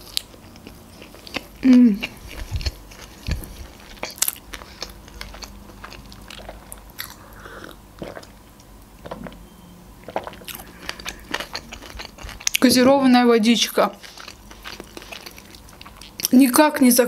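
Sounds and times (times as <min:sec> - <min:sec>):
wet chewing clicks and crunches: 0:00.0 - 0:07.2, 0:10.0 - 0:12.8, 0:13.6 - 0:16.6
sipping and swallowing: 0:06.3 - 0:08.4.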